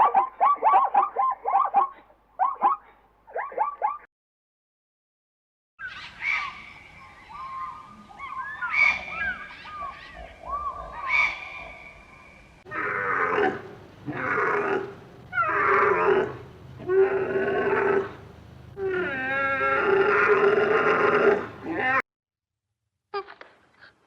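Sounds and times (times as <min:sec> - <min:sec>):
long drawn-out animal calls: 0:05.8 - 0:22.0.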